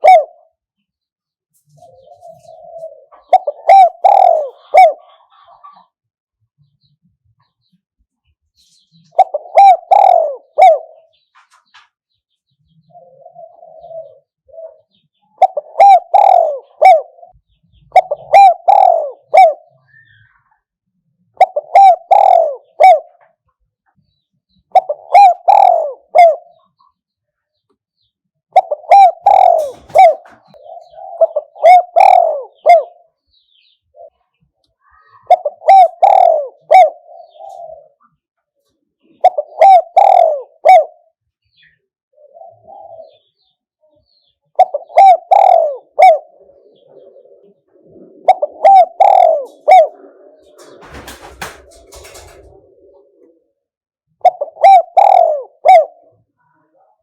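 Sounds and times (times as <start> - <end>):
dove cooing: 0.0 - 0.6, 1.6 - 5.9, 9.1 - 11.2, 12.7 - 20.5, 21.3 - 23.4, 24.7 - 26.8, 28.5 - 34.3, 35.0 - 38.2, 39.0 - 57.0.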